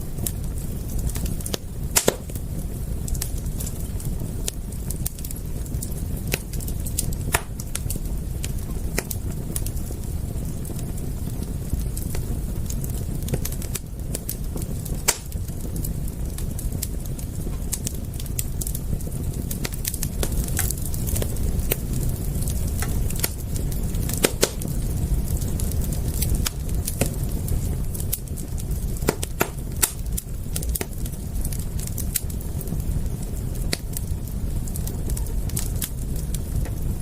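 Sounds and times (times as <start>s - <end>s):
low rumble of flames: 0.0s - 37.0s
wood fire crackling: 0.0s - 37.0s.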